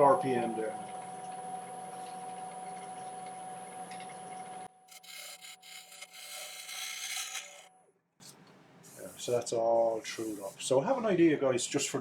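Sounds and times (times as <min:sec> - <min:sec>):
gouge cutting wood hiss: 0:04.9 - 0:07.7
lathe humming: 0:04.9 - 0:07.7.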